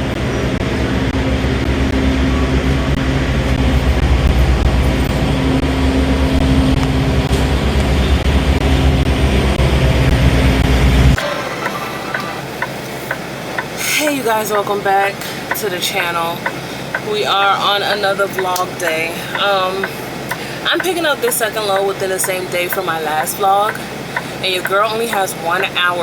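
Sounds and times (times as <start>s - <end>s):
truck diesel engine running: 11.2s - 26.0s.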